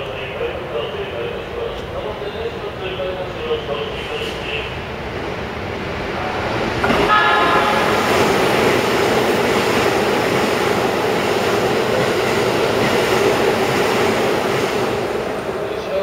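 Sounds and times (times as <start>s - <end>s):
electric train passing at speed: 0.0s - 16.0s
train horn blast: 6.9s - 8.7s.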